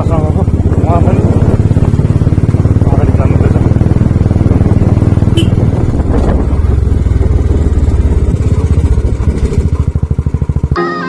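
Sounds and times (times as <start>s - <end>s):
motorcycle engine running: 0.0s - 10.8s
music: 10.8s - 11.0s.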